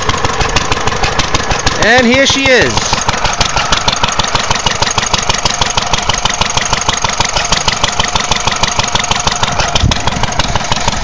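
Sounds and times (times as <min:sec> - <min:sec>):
single-cylinder engine idling: 0:00.0 - 0:11.0.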